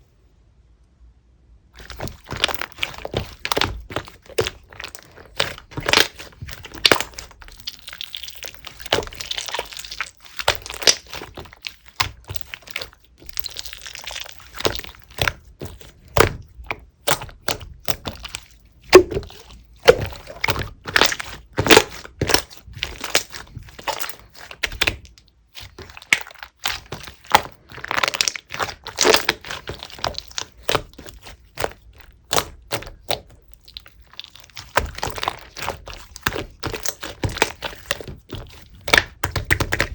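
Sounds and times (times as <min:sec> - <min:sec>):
squishy crackling slime stretches: 0:01.8 - 0:39.9.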